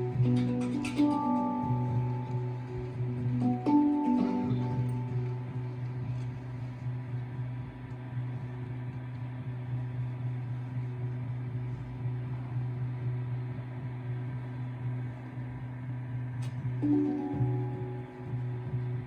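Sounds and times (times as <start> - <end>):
low drone tone: 0.0 - 7.9, 16.8 - 19.0
music: 0.0 - 19.0.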